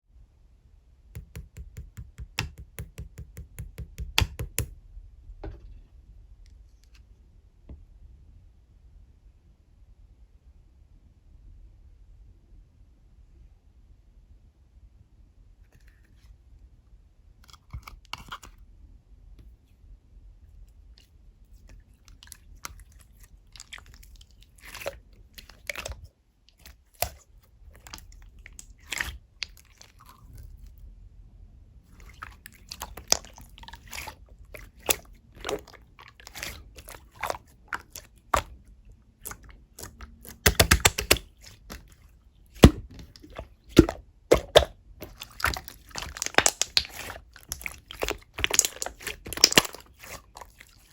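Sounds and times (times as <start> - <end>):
slime clicking and squelching: 1.2 - 4.7, 22.1 - 30.4, 31.9 - 50.9.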